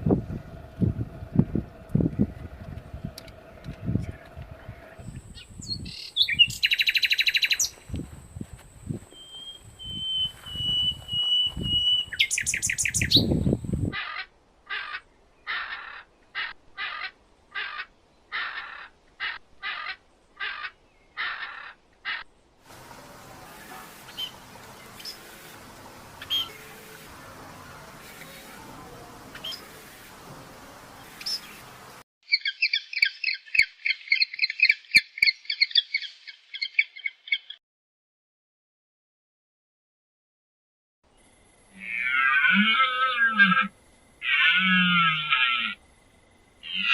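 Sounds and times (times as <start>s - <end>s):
bird whistle: 9.2s - 13.3s
buzzy pulsed bird calls: 9.2s - 13.9s, 22.8s - 37.6s
harsh bird calls: 9.2s - 37.6s.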